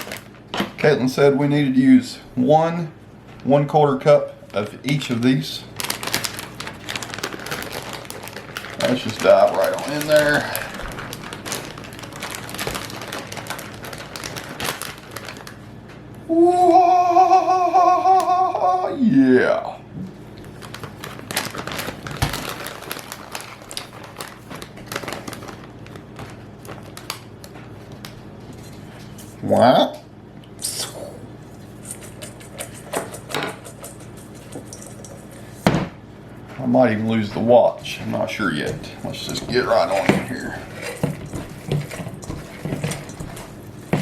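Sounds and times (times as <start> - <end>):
hands squishing wet meat: 4.5 - 15.6, 38.1 - 44.0
man exclaiming: 16.3 - 19.8.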